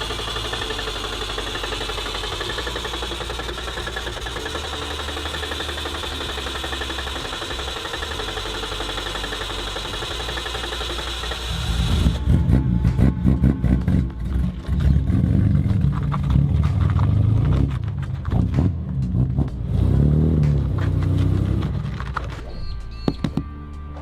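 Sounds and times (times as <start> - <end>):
car engine idling: 0.0 - 22.6.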